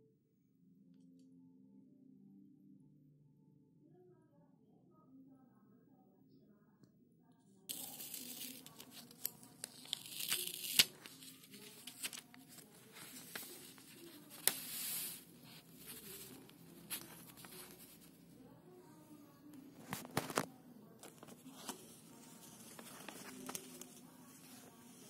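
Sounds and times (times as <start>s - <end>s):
paper snaps: 7.7s - 13.6s, 14.3s - 15.0s, 22.8s - 24.0s
paper rustling and crinkling: 7.7s - 18.1s, 19.8s - 25.0s.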